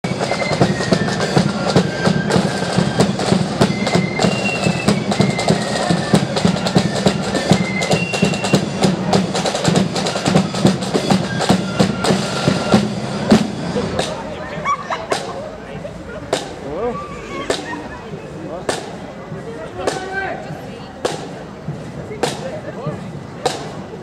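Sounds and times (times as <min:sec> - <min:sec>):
flute melody: 0:00.0 - 0:14.1
rapid side drum strokes: 0:00.1 - 0:14.4, 0:16.1 - 0:20.2, 0:21.0 - 0:24.0.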